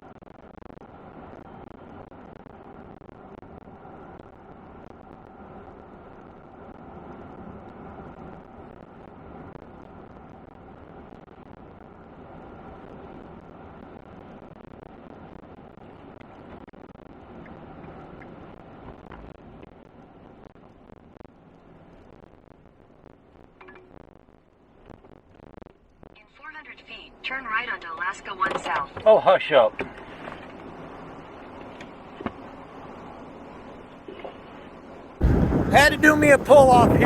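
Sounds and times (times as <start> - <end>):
faint ticks: 17.3 - 22.6
truck road and engine noise: 29.8 - 37.0.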